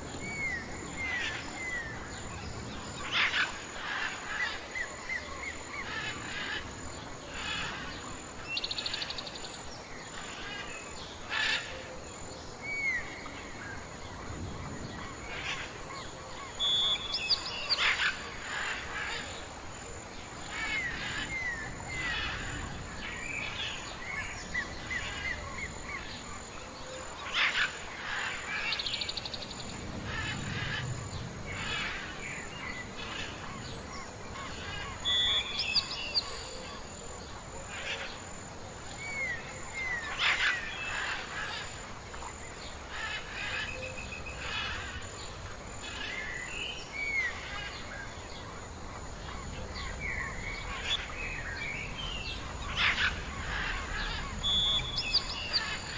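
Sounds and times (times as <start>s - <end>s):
birds chirping and whistling: 50.0s - 55.9s.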